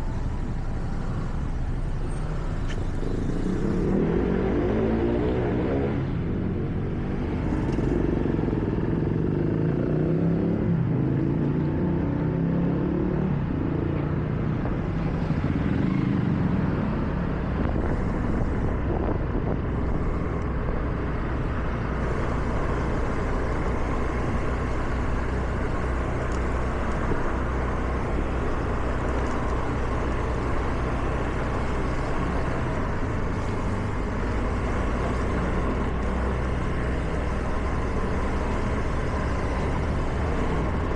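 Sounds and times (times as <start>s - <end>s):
car engine and tyres rumbling: 0.0s - 40.9s
tyre hiss on wet road: 22.0s - 40.9s.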